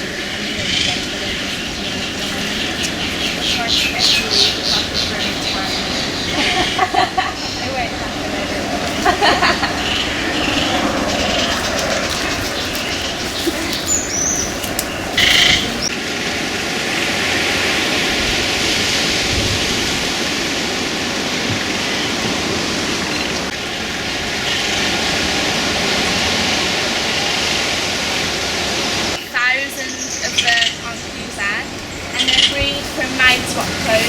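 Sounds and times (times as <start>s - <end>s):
steady rushing noise: 0.0s - 29.6s
gusty rumble: 0.0s - 34.0s
short high bird calls: 9.8s - 15.9s.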